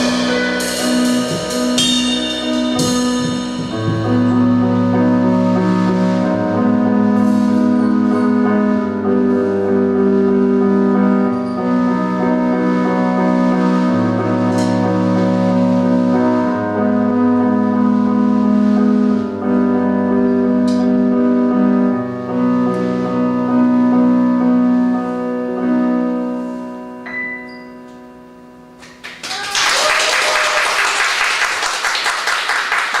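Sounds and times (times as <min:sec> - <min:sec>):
bass notes: 0:00.0 - 0:26.2
keyboard chords: 0:00.0 - 0:29.1
audience applause: 0:28.8 - 0:33.0.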